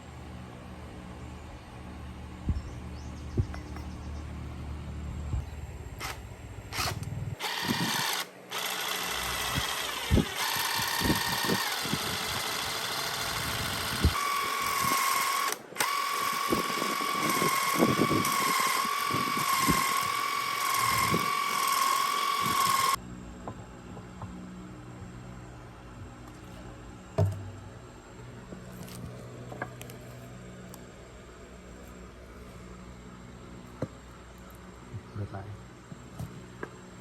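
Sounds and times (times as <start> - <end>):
power drill whining: 6.0 - 23.0.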